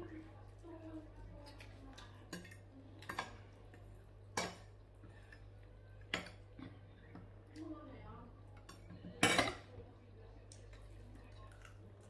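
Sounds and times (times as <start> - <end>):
cutlery clinking against dishes: 1.5 - 6.5, 8.6 - 9.7.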